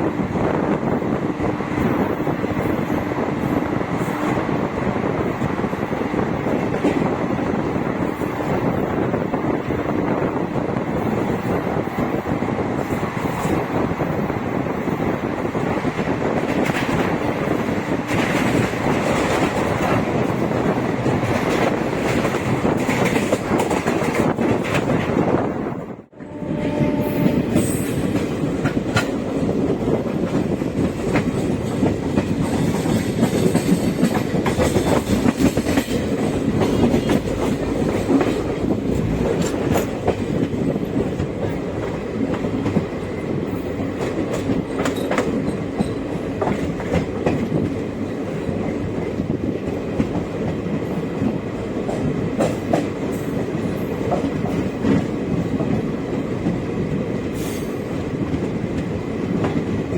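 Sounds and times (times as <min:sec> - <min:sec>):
train coaches rumbling: 0:00.0 - 0:59.9
wheels clicking over rail joints: 0:28.1 - 0:59.9.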